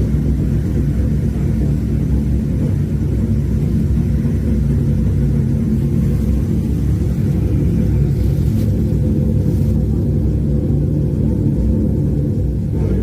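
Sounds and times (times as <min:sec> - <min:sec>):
deep rumble: 0:00.0 - 0:13.0.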